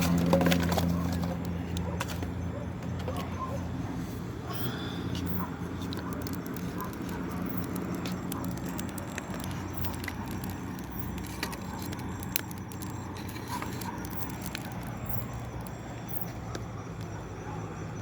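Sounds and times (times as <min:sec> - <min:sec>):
campfire crackling and popping: 0:05.9 - 0:16.0.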